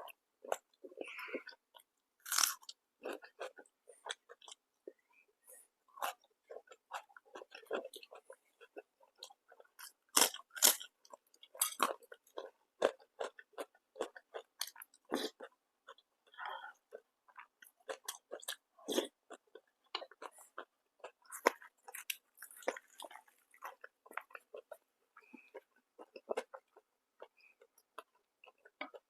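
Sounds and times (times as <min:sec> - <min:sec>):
person chewing food: 0:00.0 - 0:29.0.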